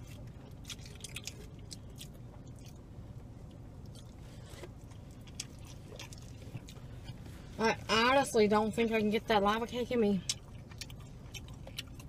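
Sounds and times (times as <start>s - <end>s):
man chewing pizza: 0.0s - 7.6s, 10.2s - 12.0s
low steady hum: 0.0s - 12.0s.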